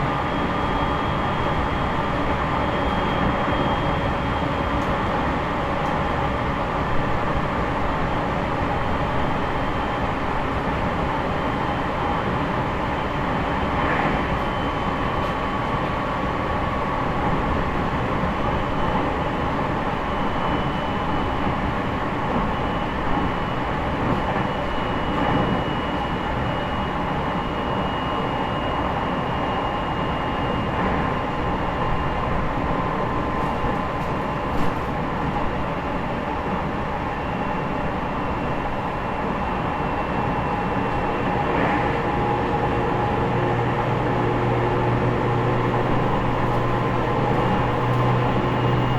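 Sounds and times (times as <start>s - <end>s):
wheels rumbling on rail: 30.7s - 37.2s, 40.2s - 48.9s
faint falling whine: 45.3s - 48.9s.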